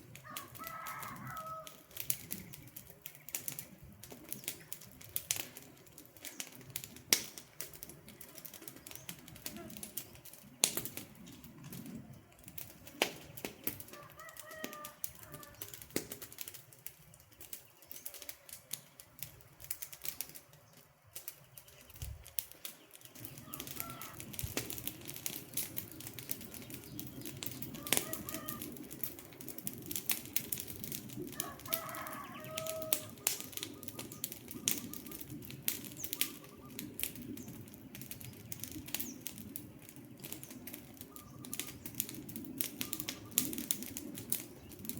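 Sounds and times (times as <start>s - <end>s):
wood fire crackling and popping: 0.0s - 44.9s
short bird calls: 32.2s - 35.4s, 36.0s - 37.0s, 41.0s - 41.9s, 42.7s - 43.6s.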